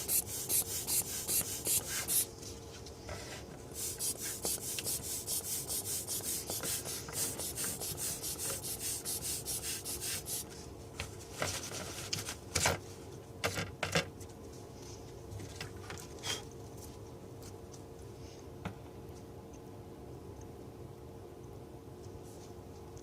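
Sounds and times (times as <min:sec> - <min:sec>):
rhythmic rubbing strokes: 0:00.0 - 0:02.3, 0:03.8 - 0:10.4
faint steady hum: 0:00.0 - 0:23.0.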